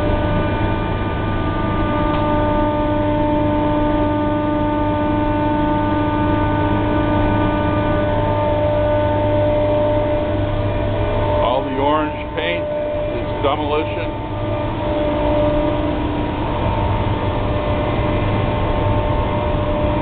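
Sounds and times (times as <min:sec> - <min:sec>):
hvac equipment humming: 0:00.0 - 0:20.0
steady whining tones: 0:00.0 - 0:20.0
rushing air noise: 0:07.6 - 0:20.0.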